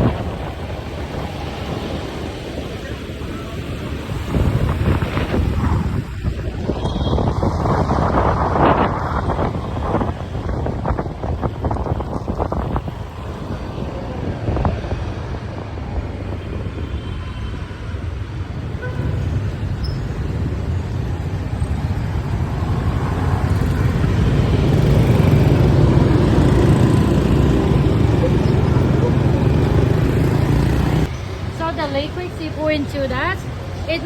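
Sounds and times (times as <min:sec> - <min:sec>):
wind buffeting microphone: 0:00.0 - 0:34.0
motorbike engine: 0:23.3 - 0:31.1.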